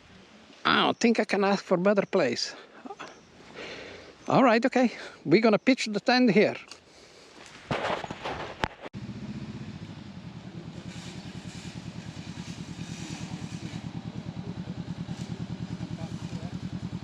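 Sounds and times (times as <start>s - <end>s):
brief clatter: 7.7s - 8.9s
motorcycle engine running: 9.0s - 17.0s.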